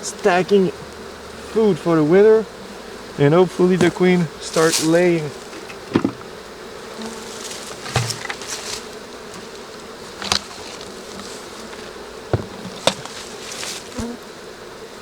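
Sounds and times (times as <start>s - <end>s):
honey bees buzzing: 0.0s - 15.0s
sharp knocks on hive: 3.7s - 6.4s, 7.0s - 14.2s.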